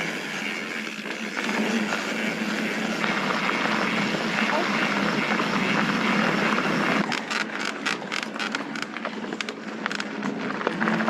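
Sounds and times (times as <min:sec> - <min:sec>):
bike clicking and rattling: 0:00.0 - 0:11.0
bike tyre and wind rush: 0:00.0 - 0:11.0.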